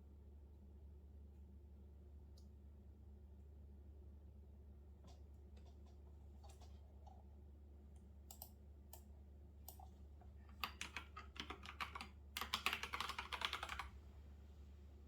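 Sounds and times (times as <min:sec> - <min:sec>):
computer keyboard typing: 0:10.5 - 0:14.0.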